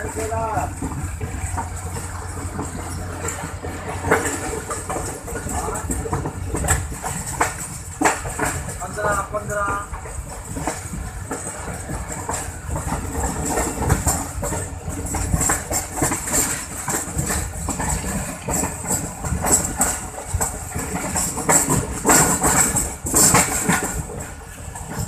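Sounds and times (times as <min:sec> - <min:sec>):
rushing rumble: 0:00.0 - 0:25.0
train wheels clattering: 0:00.0 - 0:25.0.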